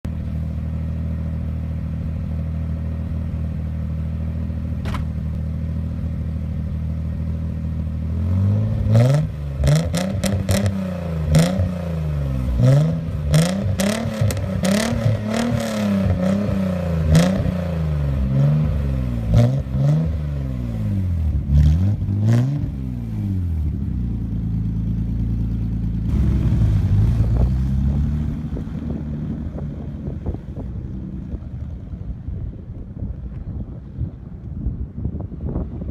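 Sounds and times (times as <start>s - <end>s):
car engine idling and revving: 0.0s - 35.8s.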